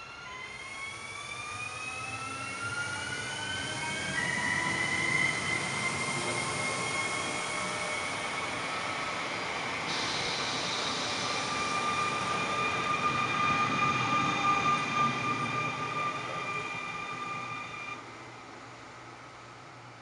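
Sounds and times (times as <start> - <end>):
electric train high-pitched whine: 0.0 - 19.5.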